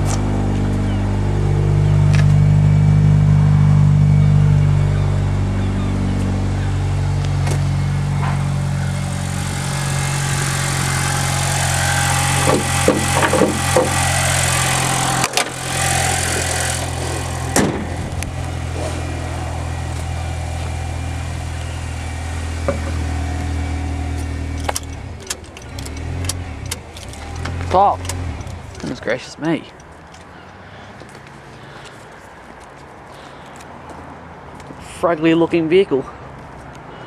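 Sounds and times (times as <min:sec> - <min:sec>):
car engine idling: 0:00.0 - 0:35.4
clicks and knocks: 0:12.2 - 0:18.4, 0:22.6 - 0:29.0.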